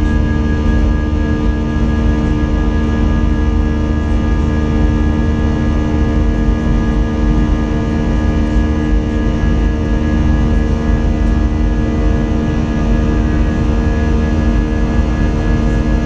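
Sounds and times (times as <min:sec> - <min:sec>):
jet engines droning in cabin: 0:00.0 - 0:16.0.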